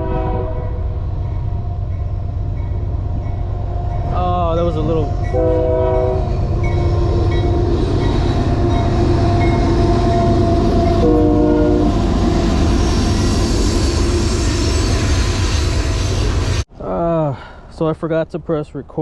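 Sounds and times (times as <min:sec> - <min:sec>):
train horn blasts: 0:00.0 - 0:01.7, 0:05.2 - 0:07.2, 0:09.4 - 0:12.1
train cars rumbling: 0:00.0 - 0:16.8.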